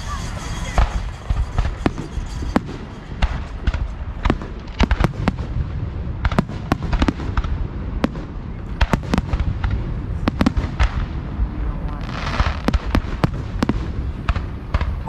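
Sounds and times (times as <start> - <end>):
fireworks shells banging: 0.0 - 5.0
continuous low rumble: 0.0 - 15.0.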